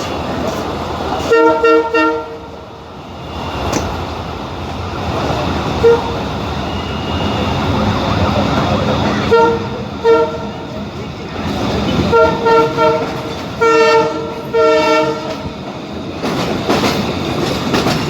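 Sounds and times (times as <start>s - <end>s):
train rumbling: 0.0s - 18.0s
train horn toots: 1.2s - 2.5s, 5.8s - 6.9s, 9.2s - 10.7s, 12.0s - 15.5s.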